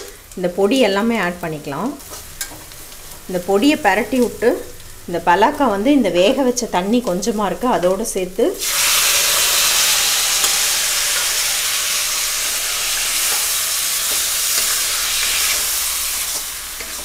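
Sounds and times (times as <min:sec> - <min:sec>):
food sizzling in hot oil: 0:00.0 - 0:17.0
spatula stirring: 0:13.0 - 0:17.0.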